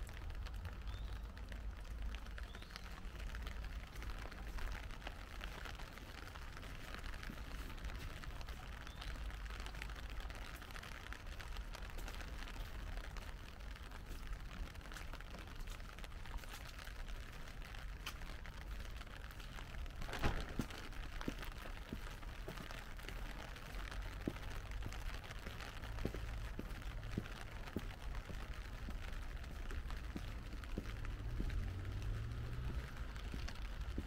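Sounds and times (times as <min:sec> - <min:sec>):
raindrops ticking: 0:00.0 - 0:34.0
light rain hissing: 0:00.2 - 0:34.0.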